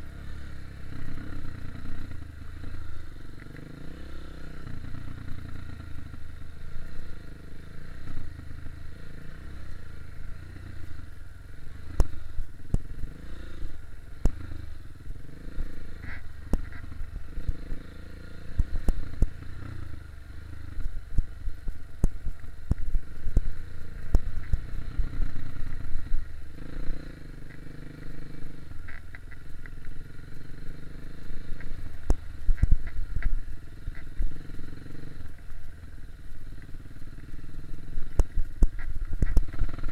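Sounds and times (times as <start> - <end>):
dirt bike engine revving: 0.0 - 20.9, 23.1 - 32.8.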